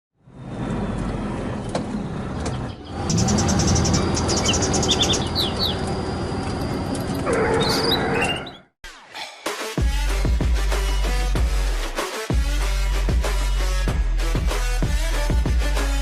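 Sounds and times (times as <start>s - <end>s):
vehicle engine running: 0.2s - 7.6s
bird chirps: 2.4s - 6.0s, 7.4s - 8.7s.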